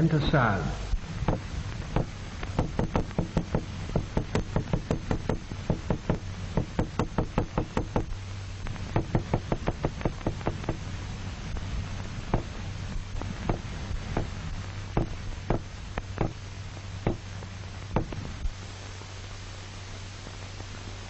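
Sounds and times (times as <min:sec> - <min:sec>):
low steady hum: 0:00.0 - 0:21.0
rapid uneven knocking: 0:01.2 - 0:08.1, 0:08.8 - 0:10.9, 0:12.2 - 0:12.6, 0:13.2 - 0:16.4, 0:17.0 - 0:17.3, 0:17.9 - 0:18.3.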